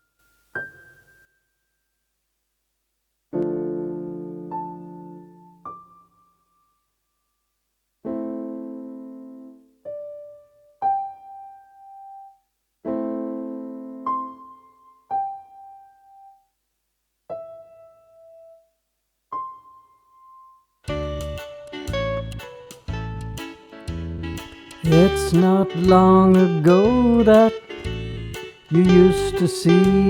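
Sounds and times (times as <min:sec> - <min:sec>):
slow solo piano: 0:00.0 - 0:01.5, 0:03.3 - 0:06.5, 0:08.0 - 0:16.4, 0:17.3 - 0:18.7.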